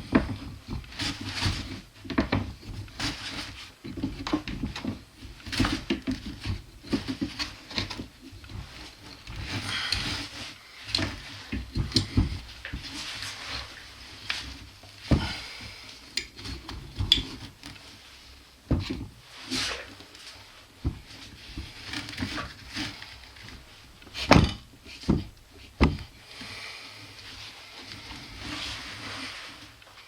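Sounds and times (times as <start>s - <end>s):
rustling: 0.0s - 30.0s.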